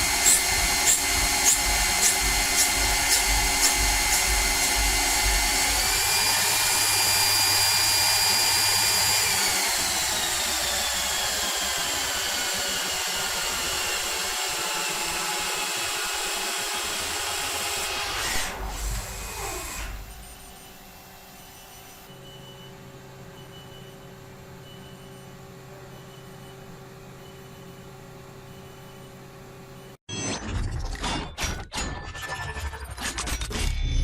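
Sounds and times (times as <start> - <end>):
lathe whine: 0.0 - 22.2.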